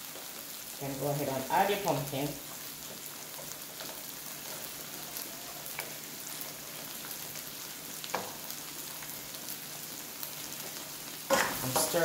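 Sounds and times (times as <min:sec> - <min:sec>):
vegetables sizzling in a wok: 0:00.0 - 0:12.0
food pieces knocking into pan: 0:08.1 - 0:08.4.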